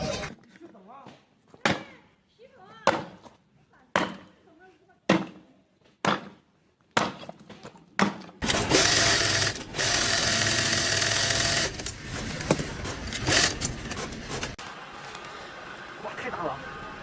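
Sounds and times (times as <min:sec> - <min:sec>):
small motorised tool whirring: 0:08.4 - 0:15.3.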